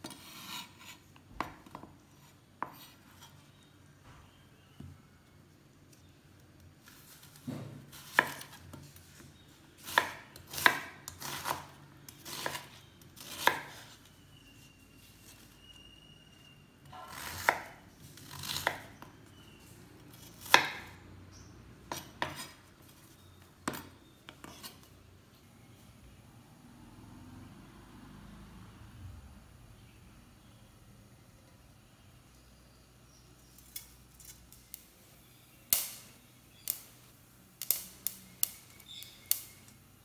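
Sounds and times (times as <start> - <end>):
knife slicing onion: 0.0 - 3.3, 6.8 - 9.2, 9.8 - 14.7, 16.9 - 21.0, 21.8 - 24.9.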